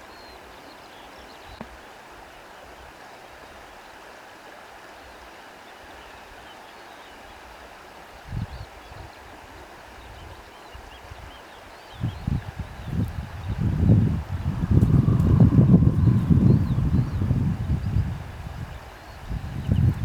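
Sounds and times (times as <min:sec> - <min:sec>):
reeds rustling in wind: 0:08.2 - 0:20.0.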